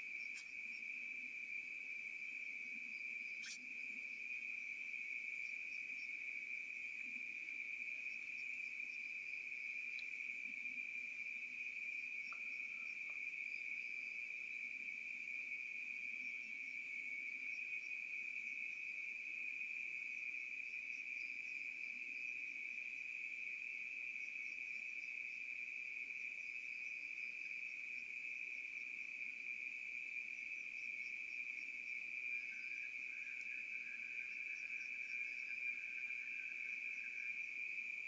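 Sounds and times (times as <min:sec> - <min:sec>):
faint chirps: 0:00.0 - 0:18.9, 0:30.2 - 0:38.0
crickets trilling: 0:00.0 - 0:38.0
lower chirping: 0:03.3 - 0:03.7.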